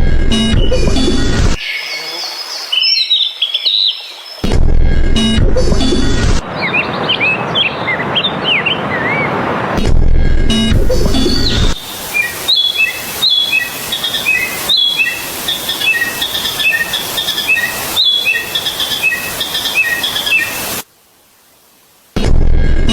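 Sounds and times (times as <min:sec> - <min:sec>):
bird whistling calls: 0:11.0 - 0:20.8
steady hiss: 0:11.2 - 0:22.2.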